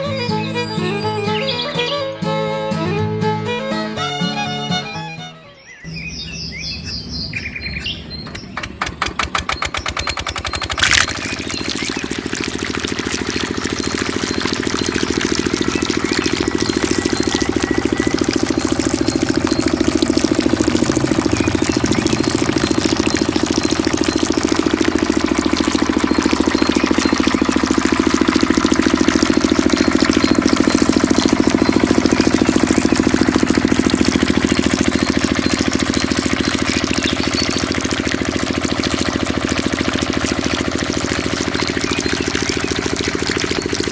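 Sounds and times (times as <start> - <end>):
diesel engine cranking: 5.9 - 43.9
diesel engine running: 5.9 - 43.9
engine catching with a bang: 6.4 - 11.4.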